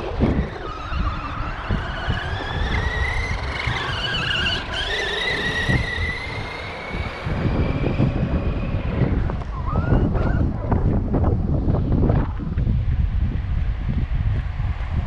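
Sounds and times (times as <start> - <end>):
electric motor whine: 0.0 - 10.6.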